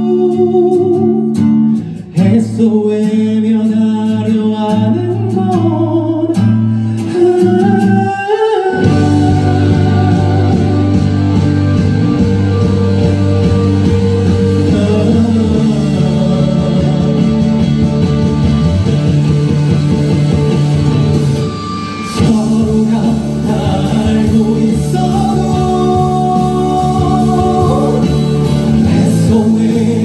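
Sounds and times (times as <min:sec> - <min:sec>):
person singing: 0:00.0 - 0:18.9, 0:21.5 - 0:30.0
rock band playing: 0:08.7 - 0:30.0.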